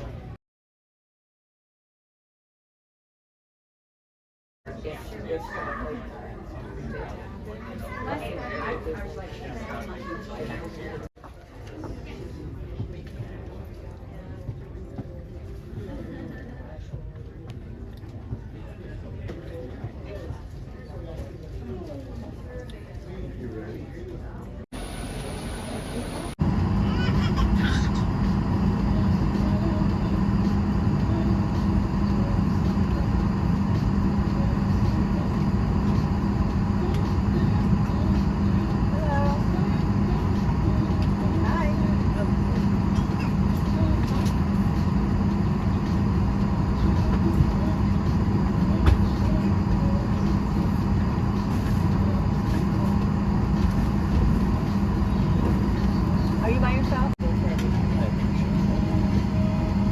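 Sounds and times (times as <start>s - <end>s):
airliner cabin engine drone: 24.8s - 59.9s.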